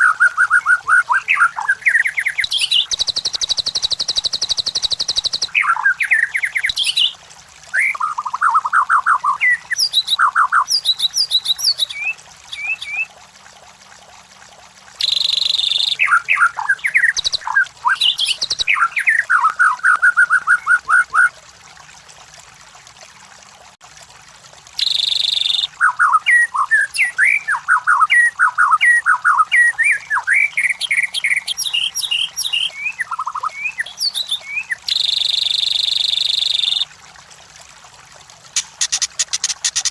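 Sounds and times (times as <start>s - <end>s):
bird singing whistled phrases: 0.0s - 13.1s, 15.0s - 21.3s, 24.8s - 36.9s.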